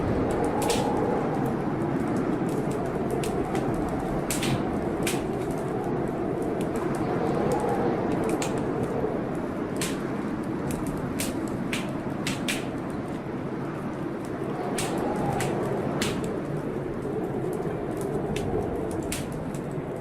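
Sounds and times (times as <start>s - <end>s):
blizzard wind whistling: 0.0s - 20.0s
wood fire crackling and popping: 0.0s - 20.0s.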